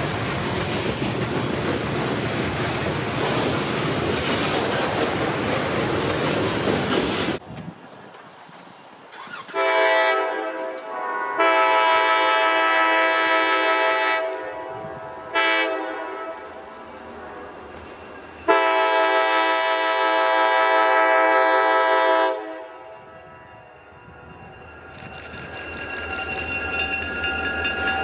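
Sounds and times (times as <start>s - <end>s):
locomotive air horn blasts: 9.3s - 16.6s, 18.5s - 22.9s.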